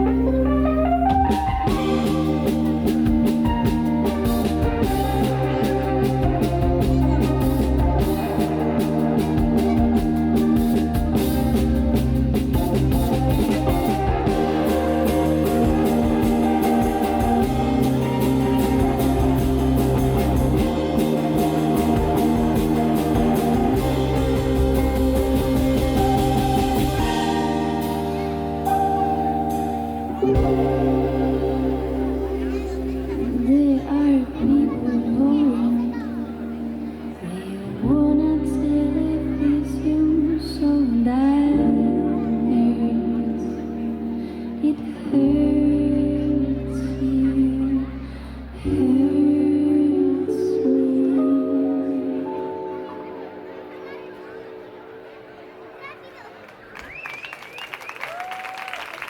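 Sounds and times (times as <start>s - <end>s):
rock band playing: 0.0s - 37.4s
guitar: 0.0s - 57.0s
drum kit: 1.0s - 33.6s
sustained chords ringing: 13.4s - 37.3s.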